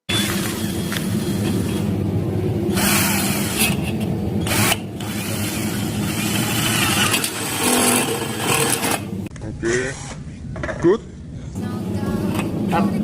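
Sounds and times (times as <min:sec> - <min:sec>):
harsh grinding noise: 0:00.0 - 0:09.3.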